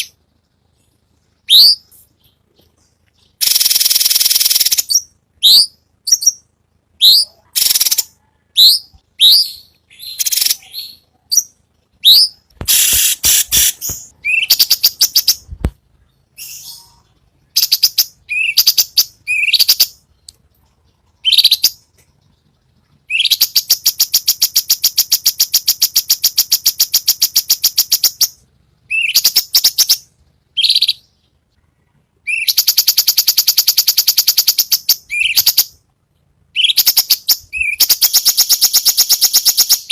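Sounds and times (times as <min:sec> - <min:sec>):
bird chirps and rattling trills: 0:00.0 - 0:08.1.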